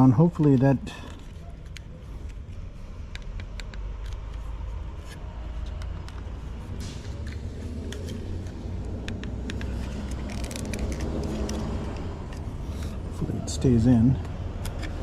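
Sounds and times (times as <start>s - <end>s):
plastic parts clicking: 3.0s - 6.3s, 7.2s - 13.0s.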